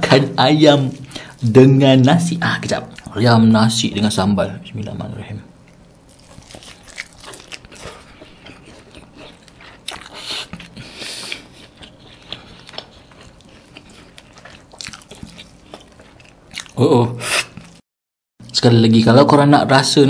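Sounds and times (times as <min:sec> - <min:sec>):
close chewing and mouth clicks: 0:05.6 - 0:16.8.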